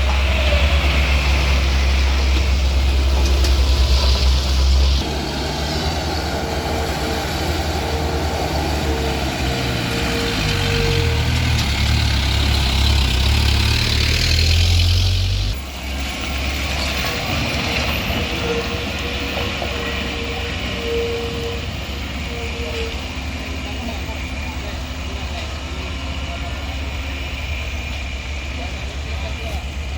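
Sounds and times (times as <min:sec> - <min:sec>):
heavy diesel engine revving: 0:00.0 - 0:18.7.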